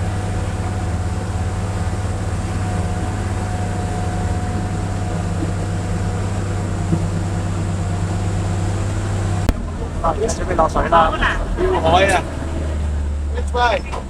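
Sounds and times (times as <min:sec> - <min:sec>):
vehicle engine droning: 0:00.0 - 0:14.0.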